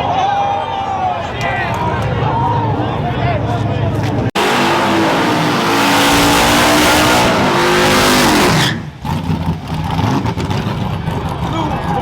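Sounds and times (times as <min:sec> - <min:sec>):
race truck engine at full throttle: 0:01.7 - 0:12.0.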